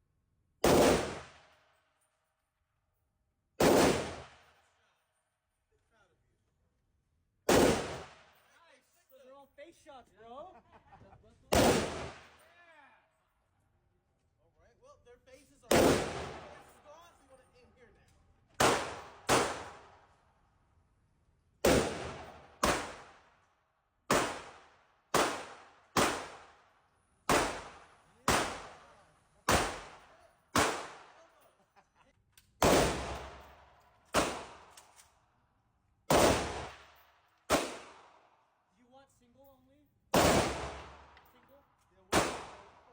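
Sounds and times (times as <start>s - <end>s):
gunshots ringing out: 0.6s - 1.5s, 3.6s - 4.6s, 7.5s - 8.5s, 11.5s - 12.5s, 15.7s - 16.9s, 18.6s - 20.1s, 21.6s - 23.4s, 24.1s - 26.7s, 27.3s - 31.5s, 32.6s - 35.0s, 36.1s - 38.3s, 40.1s - 41.3s, 42.1s - 42.9s.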